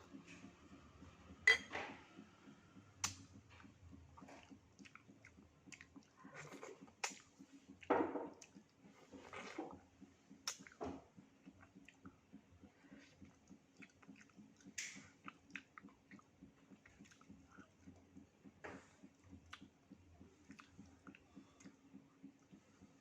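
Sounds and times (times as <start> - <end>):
person chewing food: 3.0 - 17.9, 18.9 - 21.8
wet mouth sounds: 3.9 - 10.8, 11.4 - 17.7, 20.4 - 21.8.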